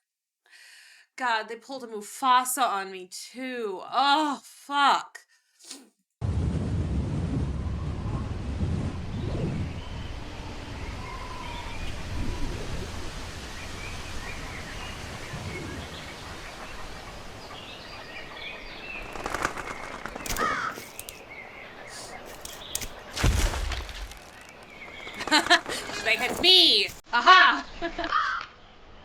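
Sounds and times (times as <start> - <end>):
low wind rumble: 6.5 - 20.3
sharp clicks: 20.1 - 21.2, 21.9 - 27.0
loud thump: 22.4 - 24.6.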